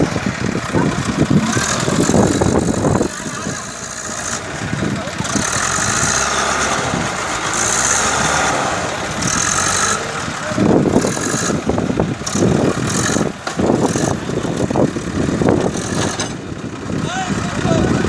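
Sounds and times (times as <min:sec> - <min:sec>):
tractor diesel engine surging: 0:00.0 - 0:18.0.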